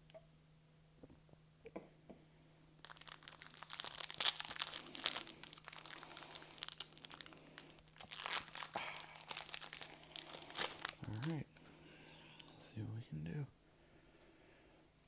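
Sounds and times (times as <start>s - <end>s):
foil wrapper crinkling and tearing: 2.8s - 11.6s.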